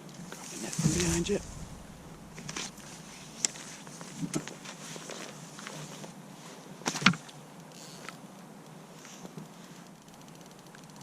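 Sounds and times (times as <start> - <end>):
rain hissing: 0.4 - 4.7.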